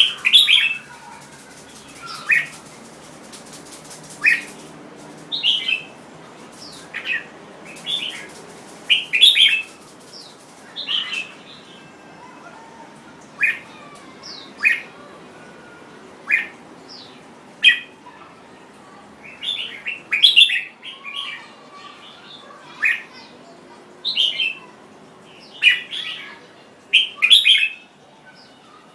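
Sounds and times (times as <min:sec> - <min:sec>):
low hiss: 0:00.0 - 0:11.7
bulbul singing: 0:00.0 - 0:11.9.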